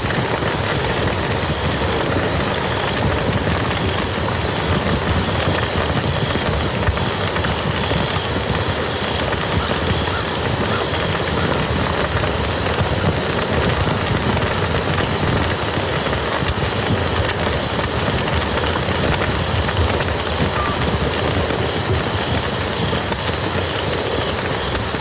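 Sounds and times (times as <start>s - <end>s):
campfire crackling and popping: 0.0s - 25.0s.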